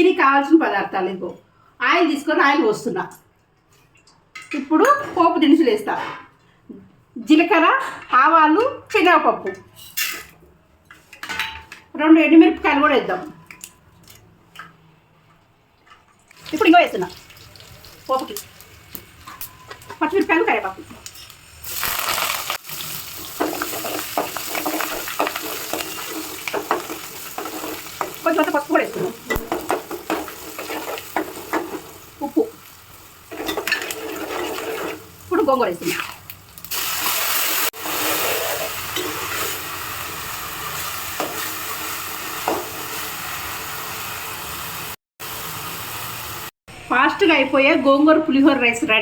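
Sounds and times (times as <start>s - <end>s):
oil sizzling and frying: 15.4s - 46.5s
stirring in a pan: 22.7s - 36.3s.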